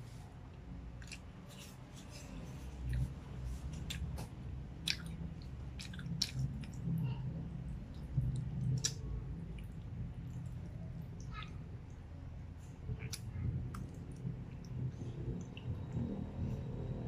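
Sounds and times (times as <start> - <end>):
wet chewing: 1.0 - 12.0, 12.6 - 16.0
mouth clicks and smacks: 2.8 - 7.0, 7.8 - 11.6, 12.9 - 16.0.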